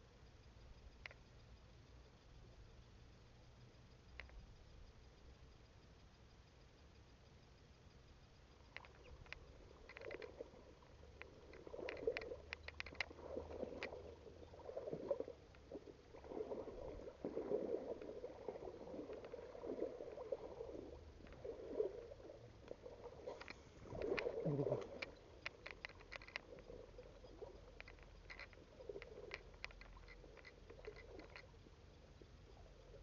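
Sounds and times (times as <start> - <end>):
light clicks: 0.2 - 2.8, 3.5 - 15.7, 22.6 - 33.0
water sloshing and splashing: 8.8 - 31.5.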